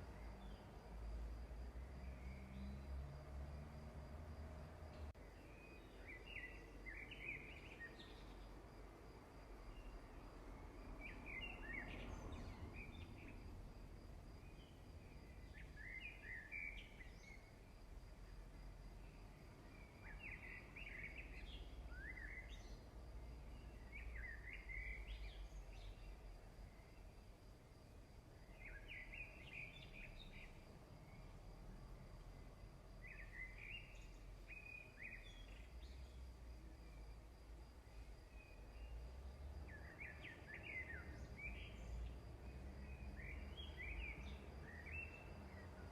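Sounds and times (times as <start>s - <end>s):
faint bird chirps: 5.1s - 8.6s, 9.7s - 13.4s, 14.4s - 17.7s, 19.0s - 27.2s, 28.4s - 31.4s, 32.4s - 45.9s.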